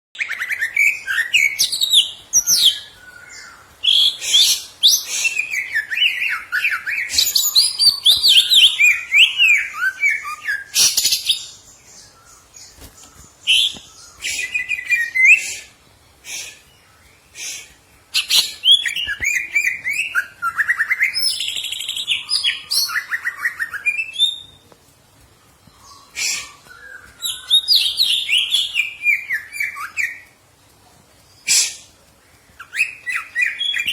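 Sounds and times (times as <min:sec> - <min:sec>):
bird singing whistled phrases: 0:00.2 - 0:11.5, 0:13.5 - 0:15.6, 0:18.2 - 0:24.6, 0:26.2 - 0:30.2, 0:32.6 - 0:33.9.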